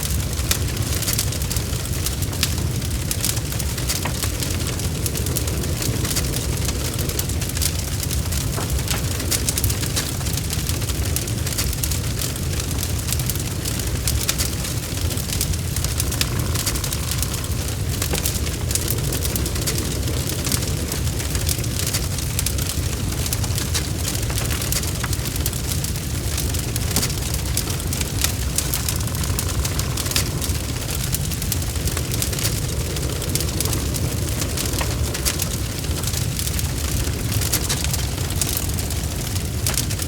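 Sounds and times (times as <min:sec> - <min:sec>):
fire crackling and popping: 0:00.0 - 0:40.0.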